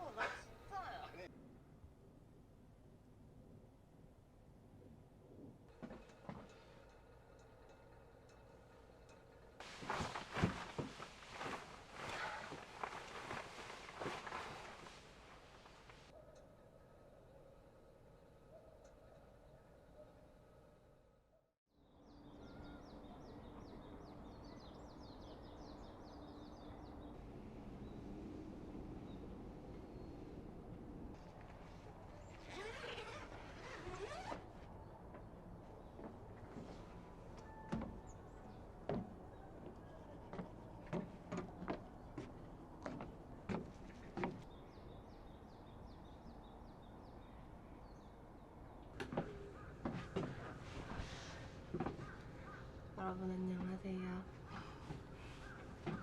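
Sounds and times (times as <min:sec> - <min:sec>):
outdoor background noise: 0:00.0 - 0:56.0
small bird calling: 0:54.4 - 0:56.0.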